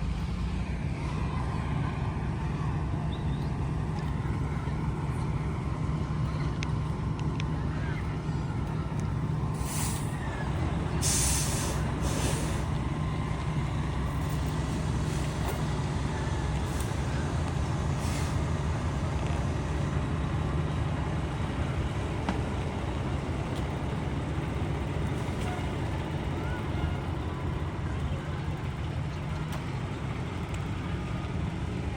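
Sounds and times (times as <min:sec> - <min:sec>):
diesel engine rumbling: 0:00.0 - 0:31.9
air brake hisses: 0:09.5 - 0:10.2, 0:11.0 - 0:12.8, 0:18.0 - 0:18.5.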